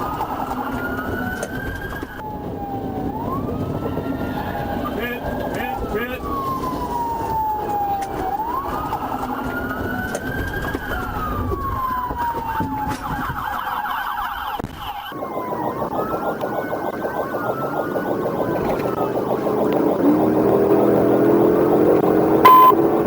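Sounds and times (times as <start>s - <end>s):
road and engine noise: 0.0s - 13.2s, 15.1s - 23.0s
police sirens wailing: 0.0s - 23.0s.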